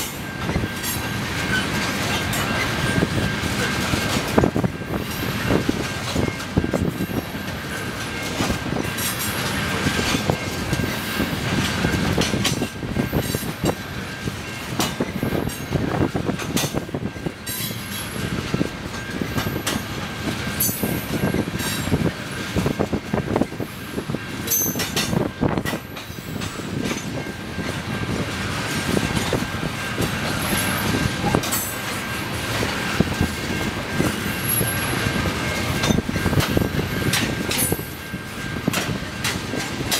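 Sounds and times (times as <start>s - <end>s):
freight train wheels rumbling: 0.0s - 39.9s
wheels clanking over rail joints: 0.0s - 39.9s.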